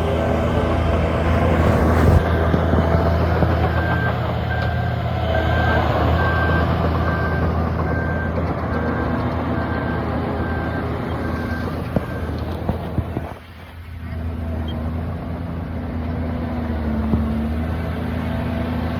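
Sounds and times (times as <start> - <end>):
reversing alarm beeping: 0.0 - 13.3
diesel earthmoving machine running: 0.0 - 18.9.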